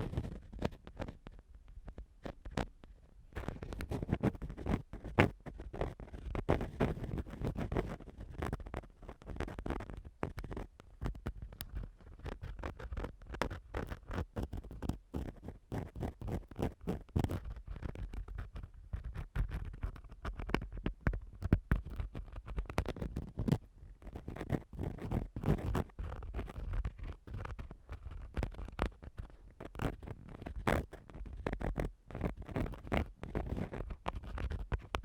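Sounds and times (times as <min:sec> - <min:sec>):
tool scratching on microphone: 0:11.8 - 0:20.7, 0:21.4 - 0:35.0.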